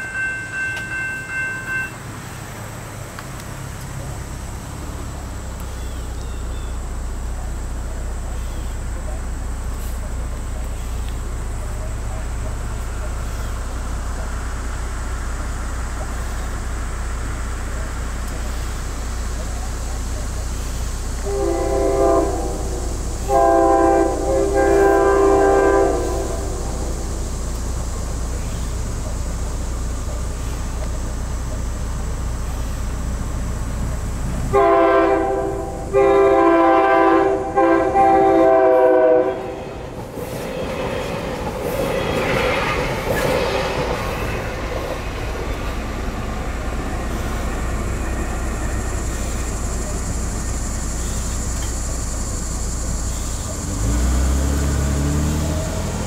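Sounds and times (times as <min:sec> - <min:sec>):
train wheel and rail noise: 0:00.0 - 0:56.0
train horn blasts: 0:21.2 - 0:27.1, 0:34.5 - 0:39.9.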